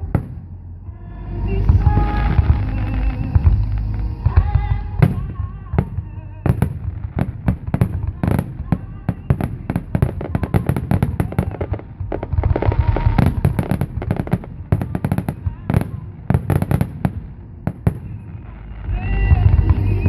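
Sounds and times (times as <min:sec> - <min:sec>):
fireworks bangs and crackling: 0:00.0 - 0:00.6, 0:01.5 - 0:20.0
crowd voices: 0:00.0 - 0:20.0.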